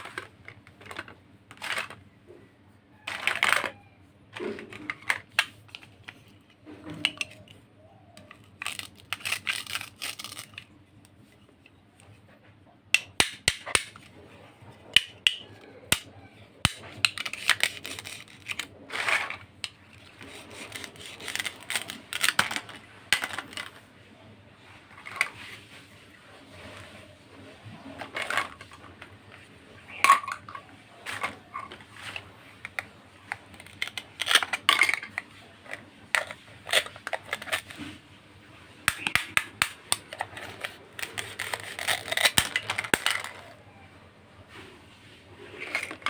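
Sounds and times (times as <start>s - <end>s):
plastic toy pieces clicking: 0.0s - 2.0s, 3.1s - 3.8s, 8.2s - 10.7s, 13.0s - 14.1s, 15.0s - 16.1s, 16.7s - 23.8s, 30.0s - 37.8s, 38.9s - 43.6s
scraping and rustling: 16.8s - 38.1s, 39.0s - 43.7s, 44.5s - 46.0s.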